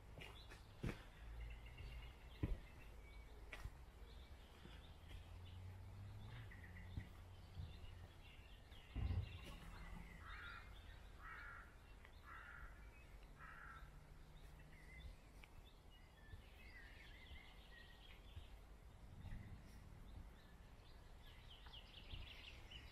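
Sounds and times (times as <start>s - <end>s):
small birds chirping: 0.0s - 22.9s
dull thump: 8.9s - 9.7s
crow cawing: 10.2s - 12.8s, 13.4s - 13.9s.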